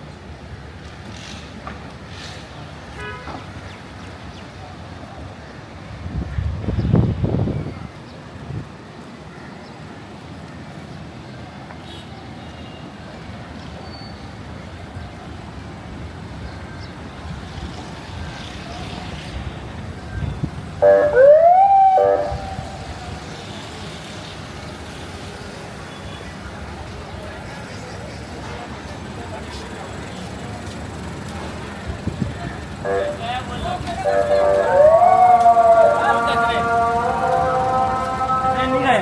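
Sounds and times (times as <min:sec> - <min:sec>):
street traffic noise: 0:00.0 - 0:39.0
short rising siren whoop: 0:21.0 - 0:22.8, 0:34.2 - 0:36.4.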